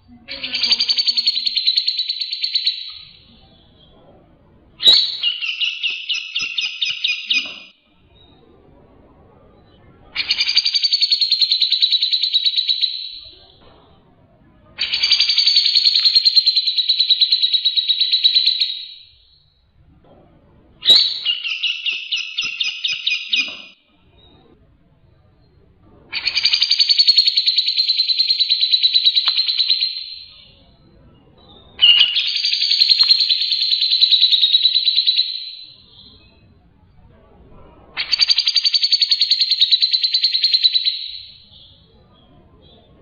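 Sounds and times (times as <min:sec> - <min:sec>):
bird chattering calls: 0:26.1 - 0:30.5, 0:31.8 - 0:36.1.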